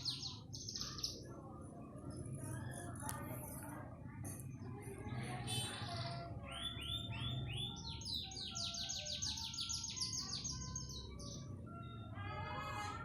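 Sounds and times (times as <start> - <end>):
canary singing: 0.0 - 3.7, 5.4 - 13.0.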